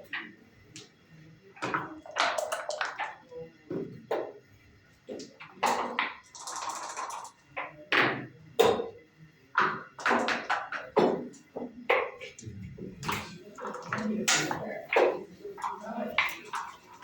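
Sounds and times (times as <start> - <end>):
dice rattling: 6.3 - 7.3.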